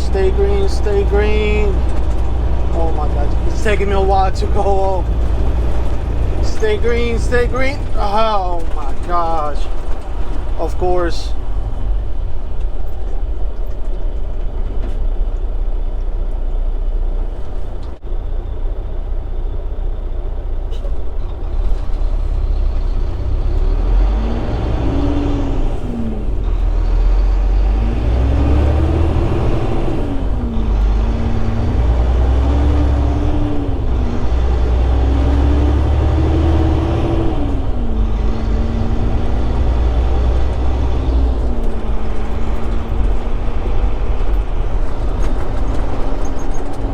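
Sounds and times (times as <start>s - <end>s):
diesel truck engine shifting gears: 0.0s - 46.9s.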